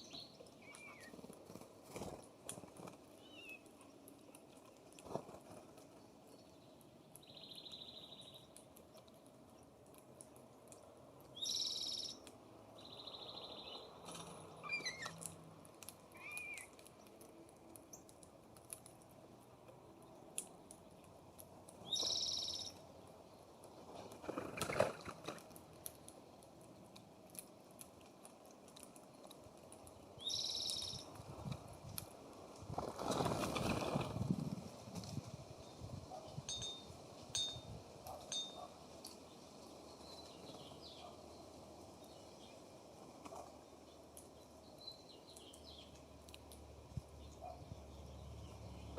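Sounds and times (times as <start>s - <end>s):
soft bird chirps: 0.0s - 1.3s, 3.2s - 4.9s, 5.9s - 9.7s, 10.7s - 15.3s, 16.1s - 18.2s, 19.8s - 25.1s, 30.0s - 31.2s
high harsh bird call: 16.2s - 16.8s.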